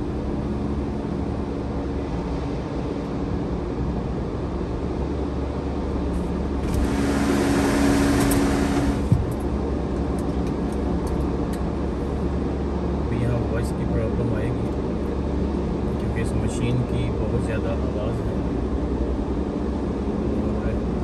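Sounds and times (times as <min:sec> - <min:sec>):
car wash machinery hissing whine: 0:00.0 - 0:10.3
car cabin low hum: 0:06.1 - 0:12.6.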